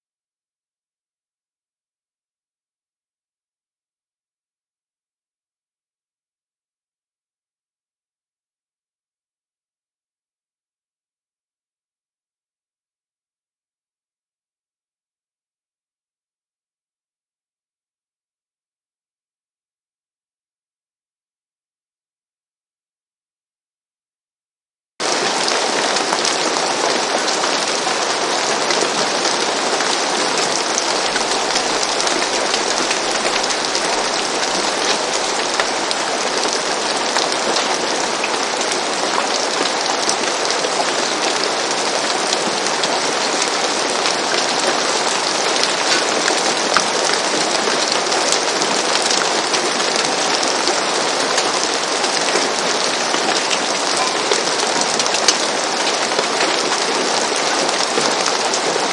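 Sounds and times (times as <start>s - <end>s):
rain on a roof: 25.0s - 58.9s.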